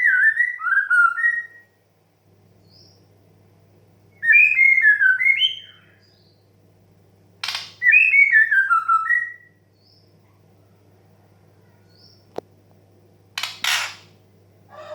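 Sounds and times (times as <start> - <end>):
short harsh bird rasp: 13.4 - 14.1.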